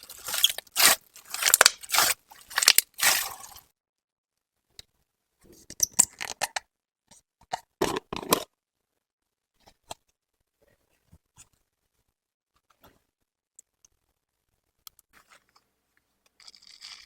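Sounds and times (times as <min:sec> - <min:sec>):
slime squished by hand: 0:00.0 - 0:03.6.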